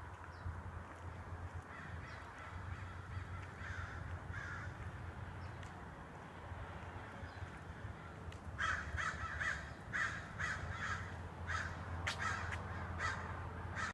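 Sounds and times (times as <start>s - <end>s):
birds calling: 1.6s - 5.7s, 7.0s - 13.9s.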